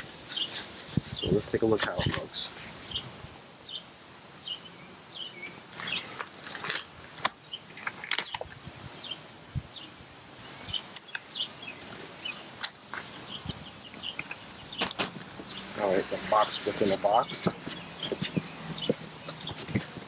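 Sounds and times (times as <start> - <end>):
cardboard box rustling and scraping: 0.0 - 2.8, 14.8 - 20.0
bird chirps: 0.3 - 0.6, 2.9 - 6.2, 7.4 - 19.8.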